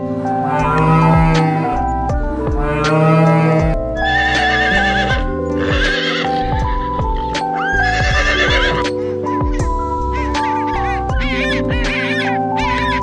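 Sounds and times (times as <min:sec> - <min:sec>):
background music: 0:00.0 - 0:13.0
cow mooing: 0:00.4 - 0:01.8, 0:02.6 - 0:06.5
horse whinnying: 0:02.7 - 0:06.7, 0:07.6 - 0:08.9.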